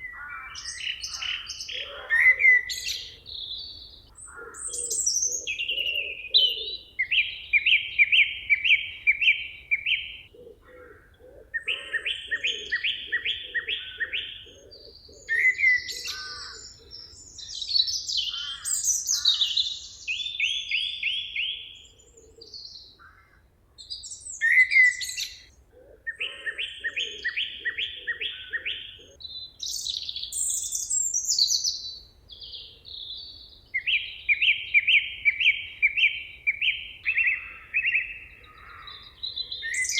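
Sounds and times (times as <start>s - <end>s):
songbird repeating a phrase: 0.0s - 10.3s, 11.6s - 21.8s
birds chirping: 0.0s - 39.9s.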